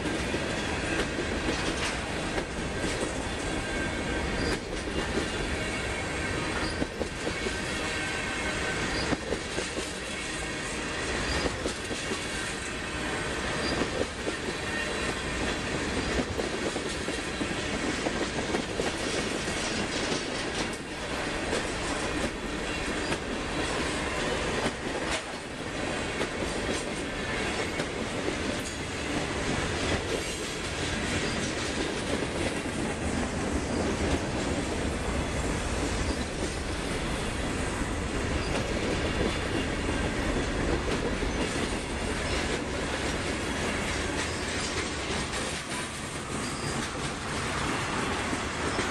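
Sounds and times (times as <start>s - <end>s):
freight train rumbling past: 0.0s - 48.9s
faint wheel squeal: 3.6s - 4.7s, 46.4s - 47.0s.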